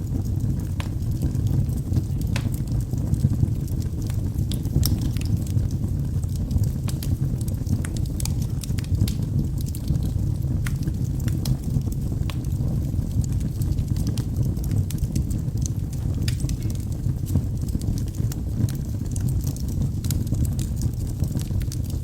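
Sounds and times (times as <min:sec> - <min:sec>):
logs popping and crackling: 0:00.0 - 0:22.0
wood fire burning: 0:00.0 - 0:22.0.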